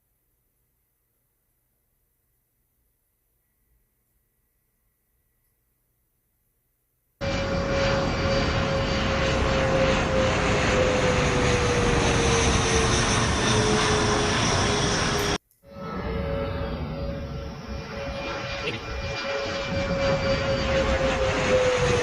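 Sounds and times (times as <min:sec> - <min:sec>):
plane flying over: 0:07.2 - 0:22.0.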